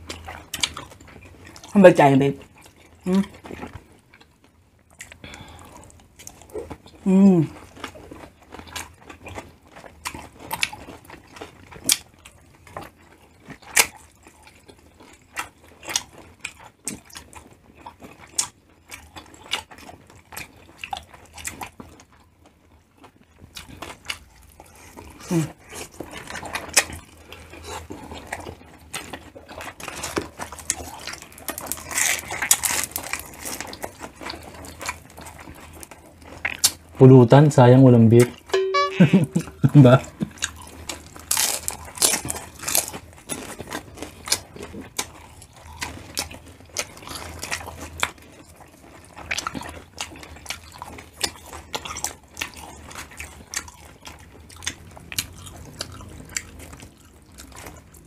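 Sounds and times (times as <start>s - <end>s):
close chewing and biting: 0.0s - 1.8s, 2.4s - 37.0s, 39.4s - 58.0s
crunching of pork rind: 0.0s - 1.8s, 2.4s - 37.0s, 39.8s - 58.0s
person humming: 7.1s - 7.5s, 38.6s - 40.0s.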